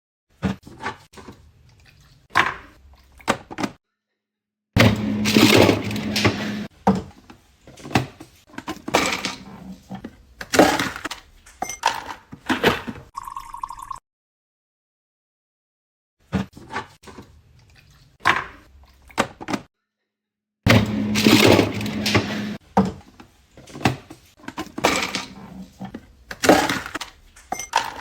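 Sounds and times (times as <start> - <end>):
ice cubes clattering: 4.9 - 6.7, 20.8 - 22.2, 26.4 - 28.0.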